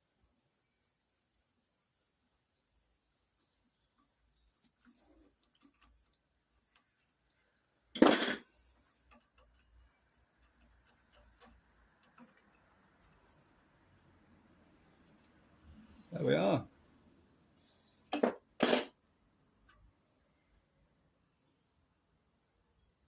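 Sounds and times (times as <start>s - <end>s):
faint bird chirps: 0.0s - 7.9s, 9.7s - 18.1s, 19.0s - 23.0s
metal parts and tools clinking: 8.0s - 8.5s, 18.1s - 19.0s.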